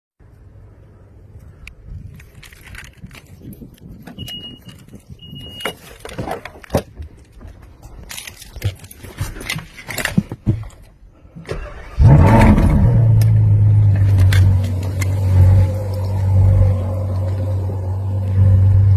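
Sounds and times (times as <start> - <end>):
short high beeps: 4.2 - 5.7
car engine starting and idling: 11.4 - 18.9.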